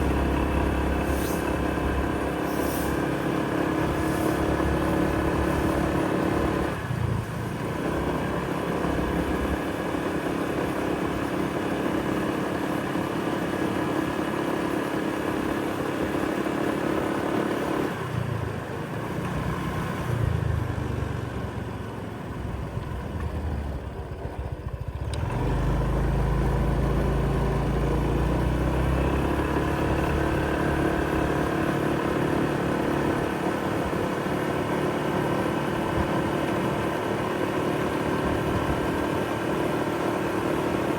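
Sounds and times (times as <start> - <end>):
deep engine hum: 0.0 - 11.5, 20.2 - 39.8
engine droning: 15.7 - 40.9.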